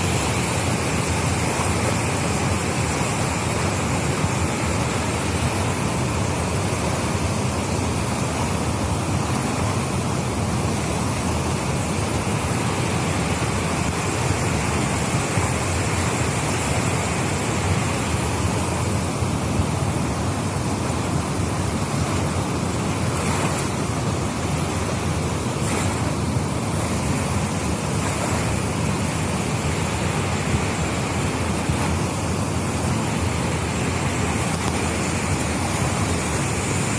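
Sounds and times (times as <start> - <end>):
rushing floodwater: 0.0 - 36.9
surf: 0.0 - 36.9.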